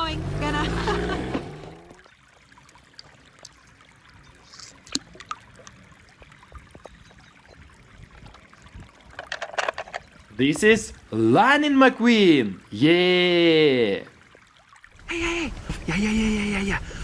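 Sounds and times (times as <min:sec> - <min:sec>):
small toys clicking and rattling: 0:09.1 - 0:10.0.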